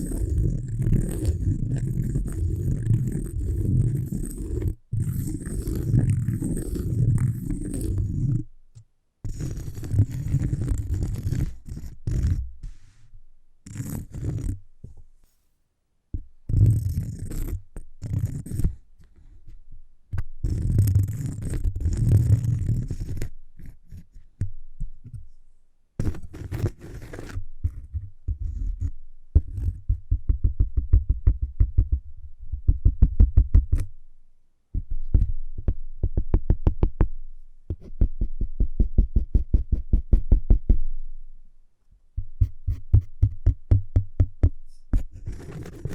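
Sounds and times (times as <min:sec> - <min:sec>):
scratching on cork: 0:00.0 - 0:08.5, 0:09.2 - 0:15.4, 0:16.5 - 0:19.6, 0:20.4 - 0:24.3, 0:26.0 - 0:29.9, 0:42.4 - 0:43.6, 0:44.7 - 0:45.9
rapid tapping on cork: 0:42.2 - 0:45.9.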